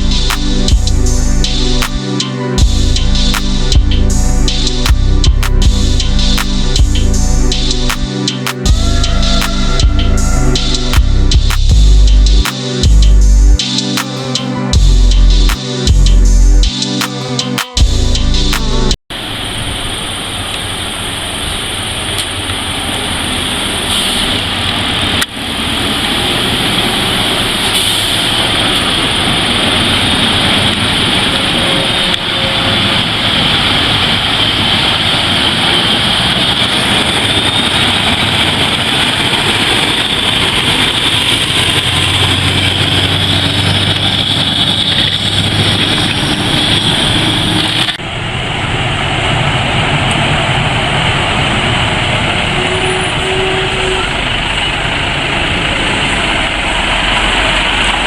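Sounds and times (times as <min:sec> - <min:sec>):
truck engine running: 0:08.6 - 0:13.6, 0:32.9 - 0:52.6, 0:53.3 - 0:58.0
road and wind noise: 0:17.9 - 0:58.0.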